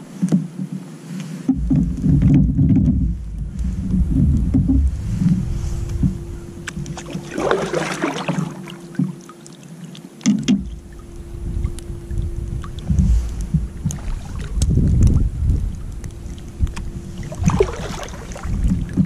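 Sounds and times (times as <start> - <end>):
water splashing around kayak: 0.0 - 19.0
wind buffeting microphone: 1.5 - 8.6, 10.5 - 19.0.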